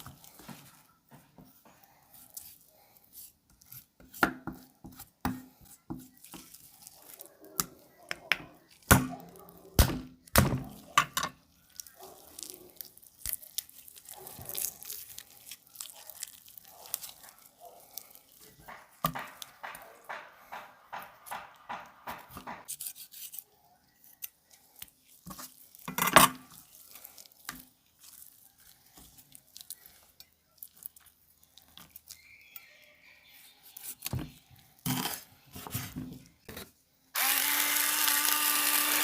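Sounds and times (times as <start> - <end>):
cutting and tearing meat: 1.9 - 35.4, 36.4 - 39.0
knife knocking on cutting board: 18.7 - 22.6.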